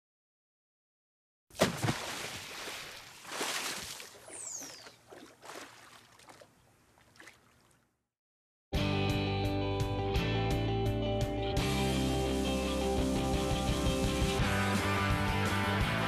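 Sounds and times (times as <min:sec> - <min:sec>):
water splashing and sloshing: 0:01.5 - 0:08.0.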